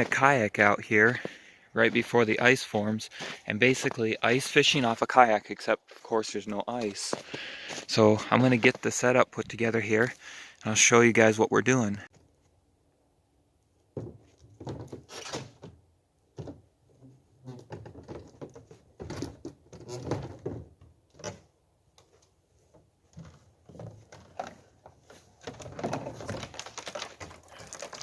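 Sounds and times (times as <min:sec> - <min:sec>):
fishing gear knocks and rustling: 0:22.0 - 0:28.0.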